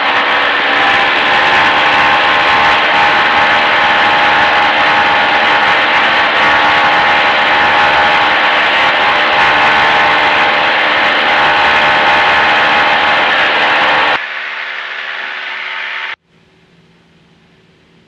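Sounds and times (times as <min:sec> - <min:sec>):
aircraft piston engine running: 0:00.0 - 0:14.2.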